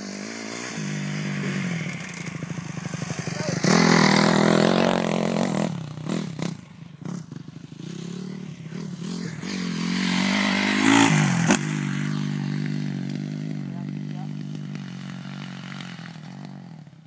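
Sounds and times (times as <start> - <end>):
motocross bike engine revving: 0.0 - 16.9.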